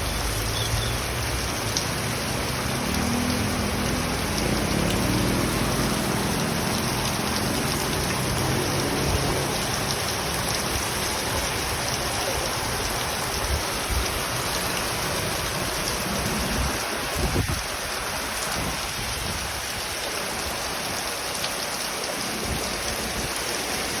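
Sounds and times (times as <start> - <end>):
heavy rain hissing: 0.0 - 24.0.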